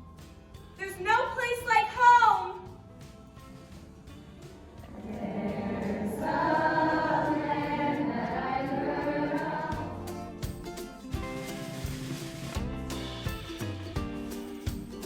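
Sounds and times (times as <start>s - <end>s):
chorus singing: 4.7s - 10.6s
instrumental music: 9.2s - 15.0s.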